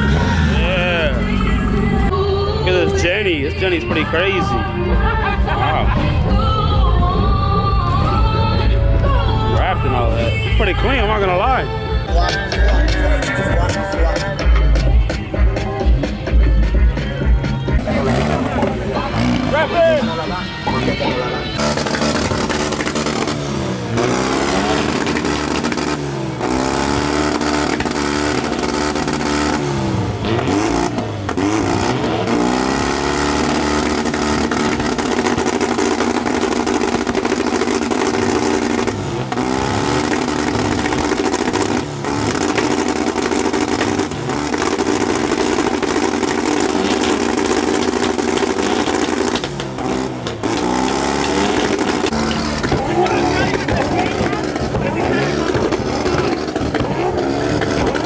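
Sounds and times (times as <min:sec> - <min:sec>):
car engine revving hard: 0:00.0 - 0:02.2, 0:16.2 - 0:58.0.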